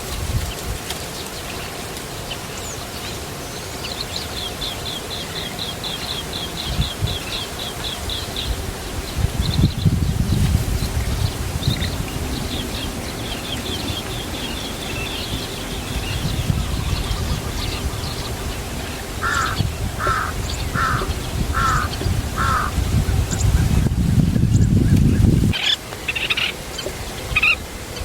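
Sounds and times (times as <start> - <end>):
birds chirping: 0.0 - 28.0
short bird calls: 19.2 - 22.7.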